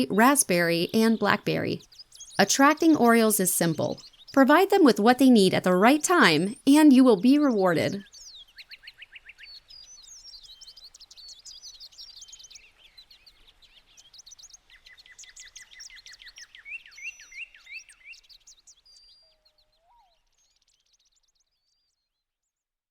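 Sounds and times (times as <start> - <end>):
songbirds chirping: 0.0 - 8.6.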